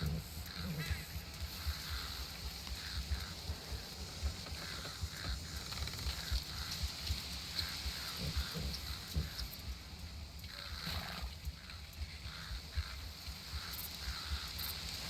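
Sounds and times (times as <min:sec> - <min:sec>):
short animal calls: 0:00.0 - 0:03.8, 0:07.5 - 0:09.6, 0:10.5 - 0:14.7
steady high hiss: 0:00.0 - 0:15.0.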